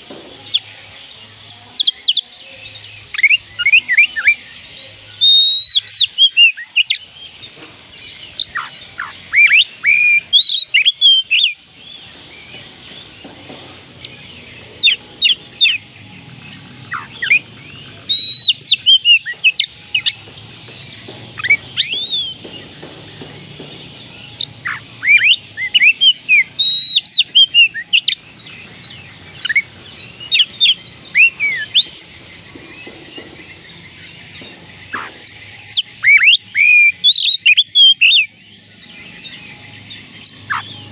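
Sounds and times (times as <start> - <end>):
bird singing whistled phrases: 1.4 - 7.1, 8.2 - 11.6, 16.4 - 20.2, 21.4 - 32.1, 34.8 - 39.5.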